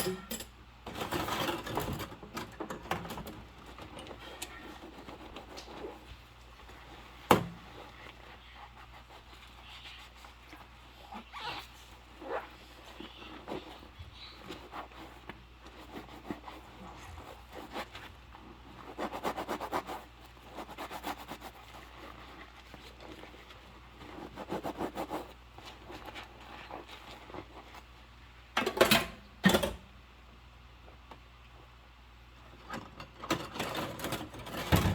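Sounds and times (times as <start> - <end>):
rubber gloves rubbing and squeaking: 3.4 - 28.2.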